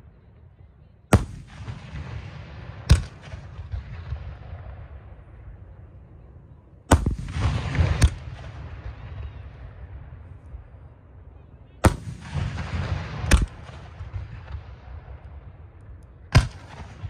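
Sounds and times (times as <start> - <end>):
sharp crack: 2.9 - 4.1, 6.9 - 8.7, 11.8 - 14.6, 16.3 - 17.0
fireworks bangs: 6.9 - 10.3, 11.8 - 15.6.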